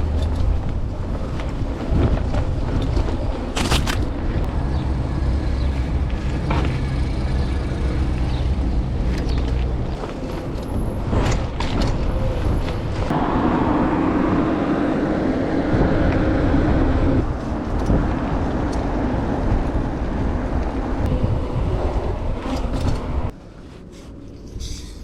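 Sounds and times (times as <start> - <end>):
wind buffeting microphone: 0.0 - 23.4
road noise: 0.0 - 25.0
loud hum: 13.1 - 17.3.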